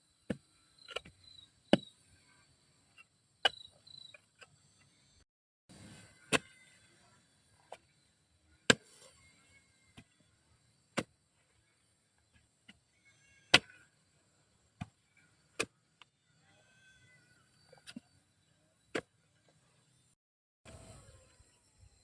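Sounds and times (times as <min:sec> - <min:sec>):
faint high insect drone: 0:19.7 - 0:22.0.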